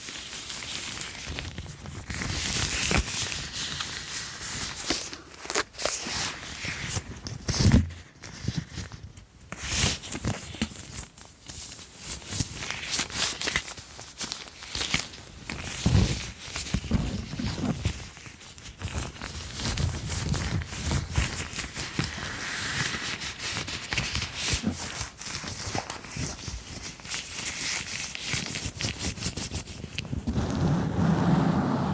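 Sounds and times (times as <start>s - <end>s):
objects rustling and crinkling: 0.0s - 31.1s.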